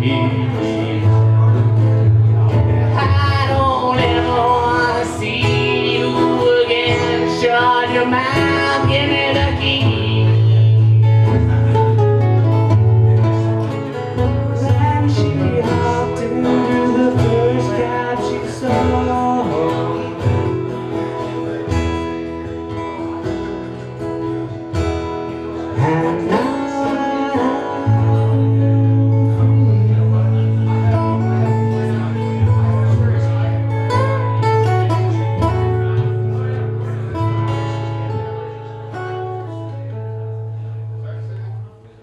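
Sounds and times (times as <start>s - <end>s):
person singing: 0.0s - 2.0s, 2.7s - 12.0s, 13.1s - 21.6s, 25.5s - 37.0s
acoustic guitar strummed and picked: 0.0s - 42.0s.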